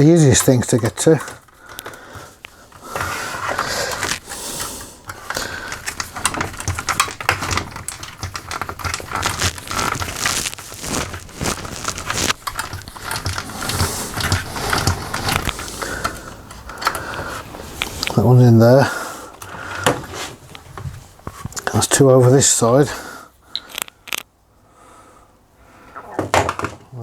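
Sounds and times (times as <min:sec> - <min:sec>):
parts knocking: 0:00.0 - 0:20.2.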